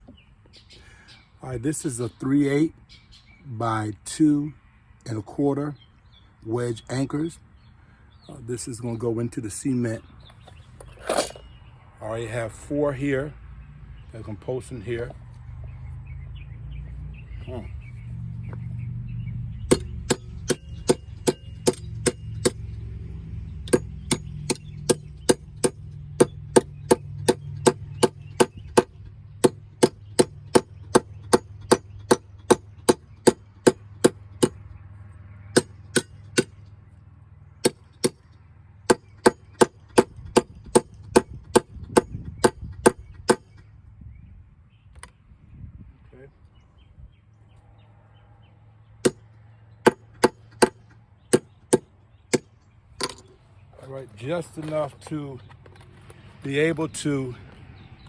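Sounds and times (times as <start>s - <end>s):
hammer clanging on metal: 19.7s - 22.6s.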